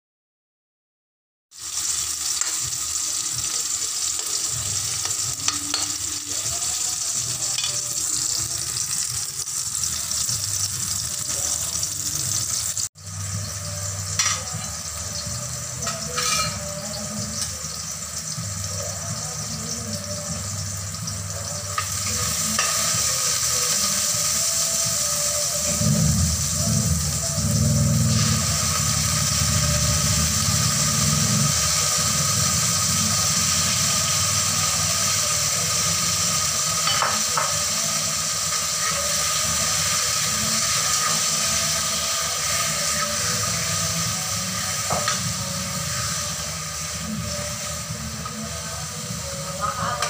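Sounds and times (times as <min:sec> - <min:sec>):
oil sizzling in a wok: 0:01.5 - 0:50.0.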